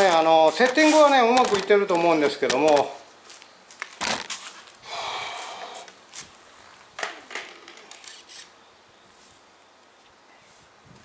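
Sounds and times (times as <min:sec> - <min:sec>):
rustling scrape: 0:00.0 - 0:01.6, 0:04.1 - 0:04.7, 0:07.9 - 0:08.5.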